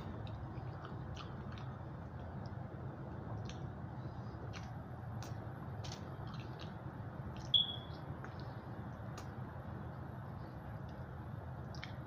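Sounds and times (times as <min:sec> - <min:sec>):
steady low hum: 0:00.0 - 0:12.0
mouth clicks from chewing: 0:00.2 - 0:02.6, 0:11.7 - 0:12.0.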